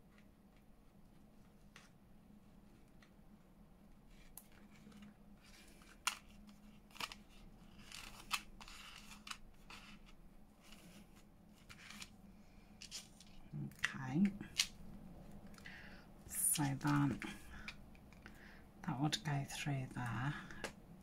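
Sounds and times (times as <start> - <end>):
paper rustling: 4.0 - 13.5.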